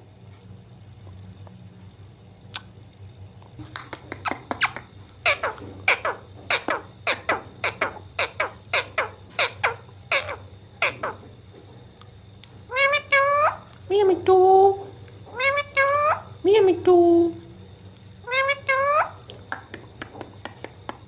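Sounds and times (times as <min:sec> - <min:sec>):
parrot squawking: 0:04.2 - 0:11.2, 0:12.7 - 0:13.7, 0:15.3 - 0:16.4, 0:18.2 - 0:19.3.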